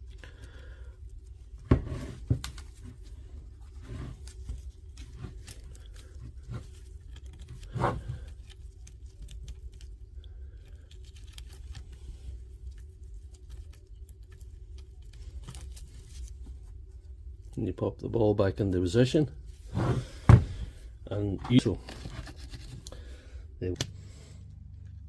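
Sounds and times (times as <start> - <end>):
small clicks and scrapes of parts: 0.0 - 17.6, 21.5 - 23.0
low steady hum: 0.0 - 25.0.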